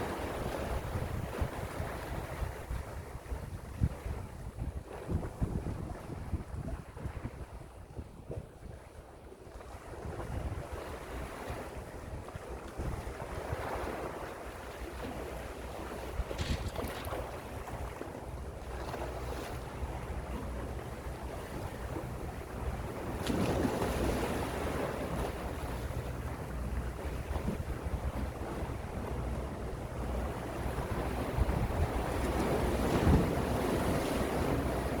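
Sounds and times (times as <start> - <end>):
wind rumble on microphone: 0.0 - 35.0
sea waves washing in: 13.2 - 20.4.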